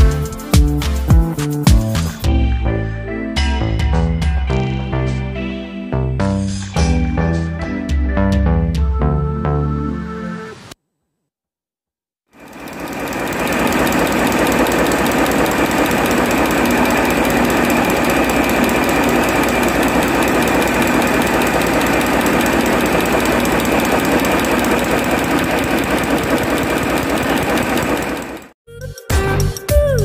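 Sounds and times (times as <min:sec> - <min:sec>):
marine diesel engine running: 0:12.4 - 0:28.6.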